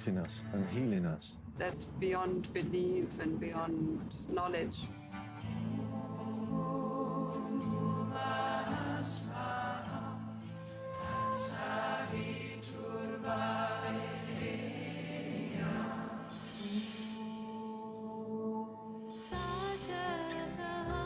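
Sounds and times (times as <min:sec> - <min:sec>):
group singing a chant: 0:05.5 - 0:21.0.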